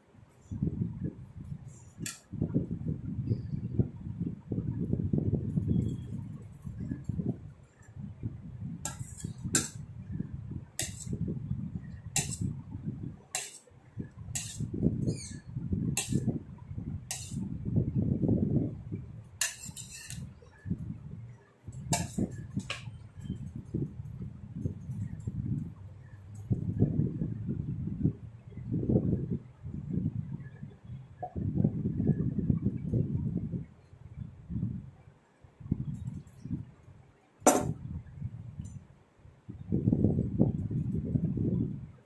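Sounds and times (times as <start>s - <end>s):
spatula knocking against bowl: 8.9s - 9.8s, 10.8s - 11.1s, 12.2s - 12.4s, 13.4s - 13.6s, 14.4s - 14.6s, 16.0s - 16.2s, 17.1s - 17.4s, 19.4s - 20.2s, 22.0s - 22.8s.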